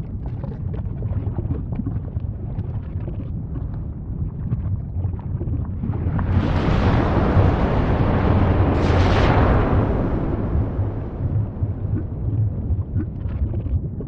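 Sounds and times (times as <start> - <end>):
crackles and pops: 0.0 - 14.0
volcano rumbling: 3.6 - 14.0
rushing blast: 6.0 - 13.3.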